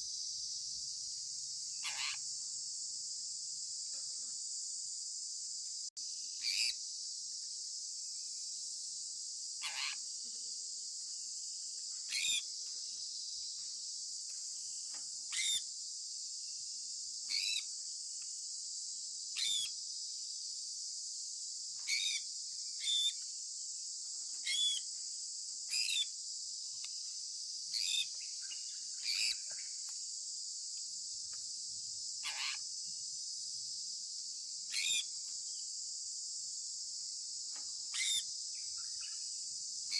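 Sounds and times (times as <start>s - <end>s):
steady high-pitched hiss: 0.0s - 39.9s.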